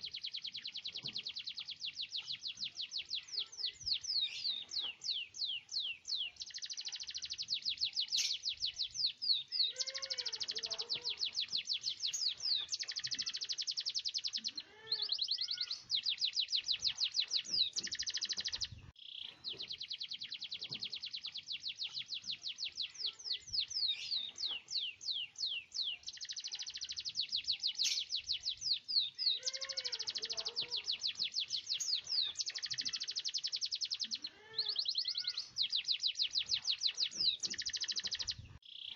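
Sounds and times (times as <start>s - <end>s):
canary singing rapid trills: 0.0s - 38.9s.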